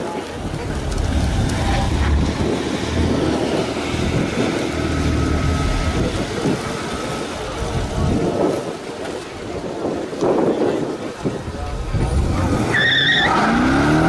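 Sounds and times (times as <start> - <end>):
wind buffeting microphone: 0.0 - 14.0
car engine running: 0.4 - 8.5.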